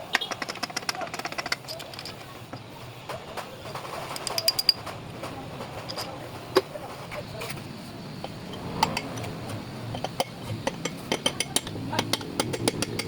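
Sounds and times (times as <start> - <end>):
metal tools clinking and tapping: 0.1 - 6.7, 9.9 - 13.0.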